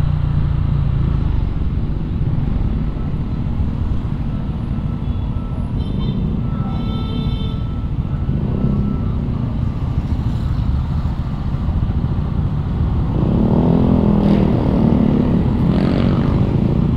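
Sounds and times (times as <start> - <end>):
road traffic rumble: 0.0 - 16.9
motorcycle engine accelerating: 12.9 - 16.9.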